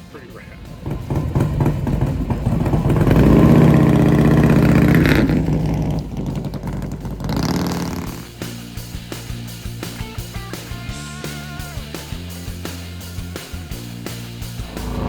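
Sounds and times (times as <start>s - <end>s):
motorcycle engine accelerating past: 0.5s - 8.3s, 14.4s - 15.0s.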